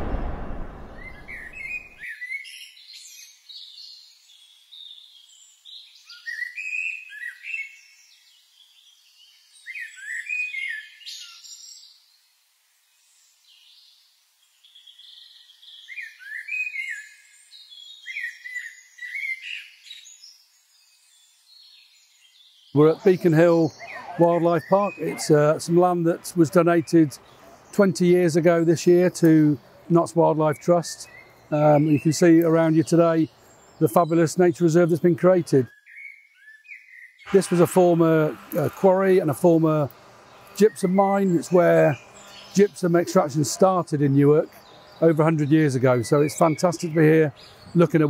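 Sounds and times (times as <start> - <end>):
whoosh: 0.0 - 2.0
songbirds chirping: 3.2 - 48.0.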